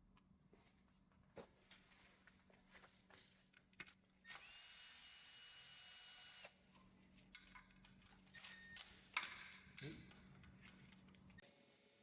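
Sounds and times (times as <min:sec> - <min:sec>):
power drill whining: 0:04.3 - 0:06.5.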